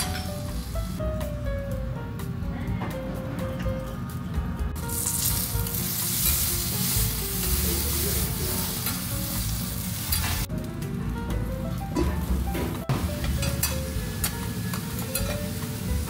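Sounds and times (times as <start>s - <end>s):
potatoes sizzling on a griddle: 4.9s - 10.5s
metal spatulas turning food: 5.1s - 10.5s, 13.2s - 16.0s.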